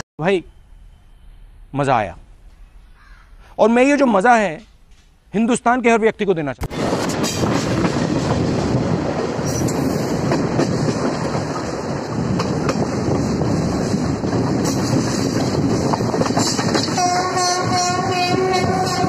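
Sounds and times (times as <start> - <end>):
train wheel and wind rush: 6.6 - 19.0
wheels clicking over rail joints: 9.4 - 17.6.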